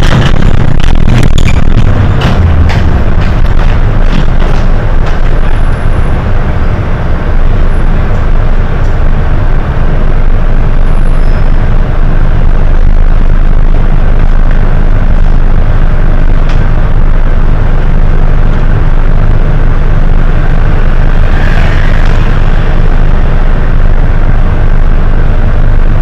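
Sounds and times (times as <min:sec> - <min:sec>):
bus diesel engine rumble: 0:00.0 - 0:26.0.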